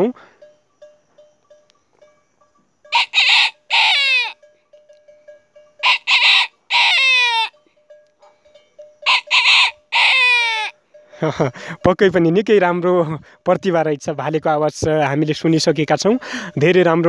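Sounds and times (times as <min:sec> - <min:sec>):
boy imitating rooster crow: 0:02.9 - 0:04.4, 0:05.8 - 0:07.6, 0:09.1 - 0:10.8.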